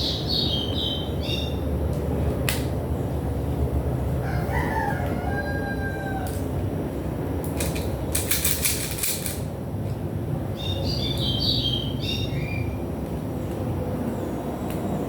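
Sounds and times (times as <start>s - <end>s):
bird chirping: 0.0s - 1.7s, 10.5s - 12.8s
clicks and rattles of small parts: 7.4s - 9.5s.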